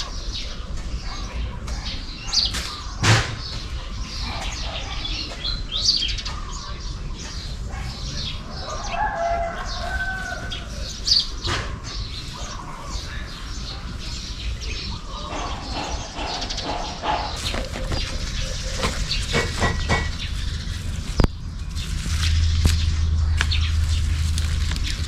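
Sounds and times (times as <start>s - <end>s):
birds chirping: 0.0s - 25.0s
rustling and clicking handling noises: 17.4s - 25.0s.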